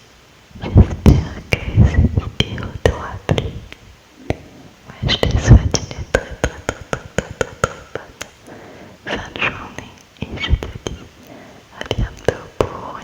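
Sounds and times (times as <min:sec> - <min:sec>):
wet mouth clicks and smacks: 0:06.1 - 0:08.4
breathing: 0:08.4 - 0:09.1, 0:11.2 - 0:11.7.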